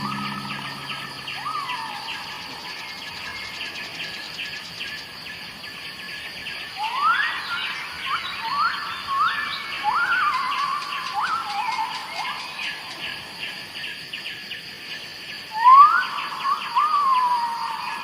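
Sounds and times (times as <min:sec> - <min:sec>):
birds whistling rising notes: 0:00.0 - 0:02.7
insects chirring: 0:00.0 - 0:18.0.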